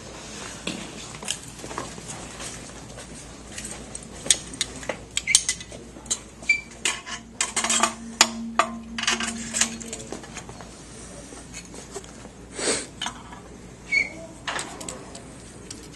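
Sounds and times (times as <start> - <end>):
metal parts and tools clinking: 4.3 - 10.5.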